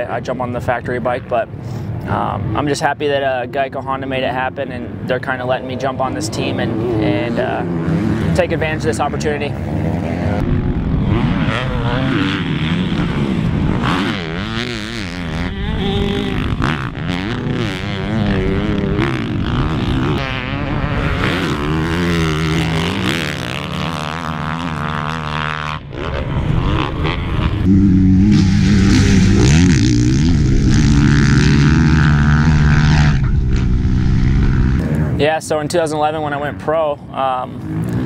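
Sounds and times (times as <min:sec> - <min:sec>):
motocross bike engine revving: 0:05.7 - 0:35.2, 0:37.4 - 0:38.0.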